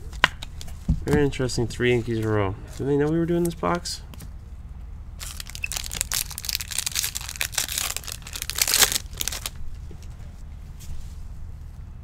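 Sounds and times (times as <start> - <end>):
foil wrapper tearing and crinkling: 5.2 - 9.6.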